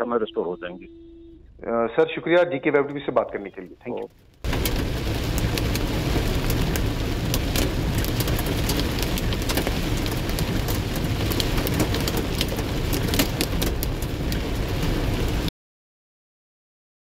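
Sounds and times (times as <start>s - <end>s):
rain falling: 3.4s - 15.5s.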